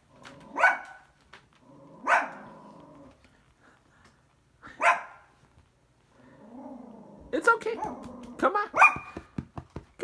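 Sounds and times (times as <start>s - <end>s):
small dog barking: 0.5s - 1.0s, 2.0s - 2.5s, 4.8s - 5.3s, 7.7s - 9.2s.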